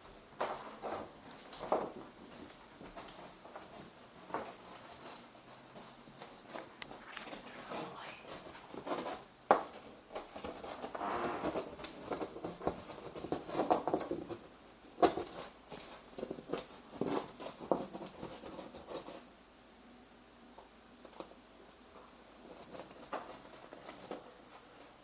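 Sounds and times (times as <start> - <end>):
animal scratching and scurrying: 0.4 - 19.3.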